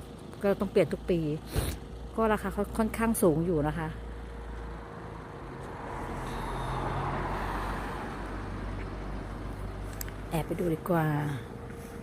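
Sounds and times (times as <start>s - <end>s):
road vehicle passing by: 1.9s - 12.0s.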